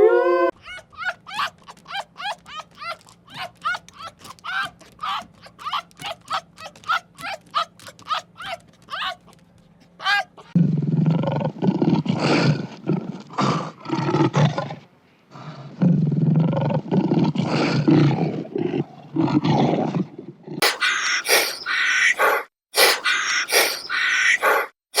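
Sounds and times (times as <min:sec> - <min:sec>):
rough throaty animal calls: 0:20.6 - 0:25.0
short pitched animal calls: 0:20.6 - 0:25.0.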